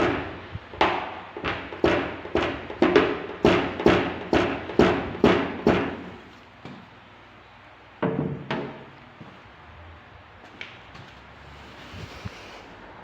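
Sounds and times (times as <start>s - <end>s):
hammer tapping sheet metal: 0.0s - 6.2s.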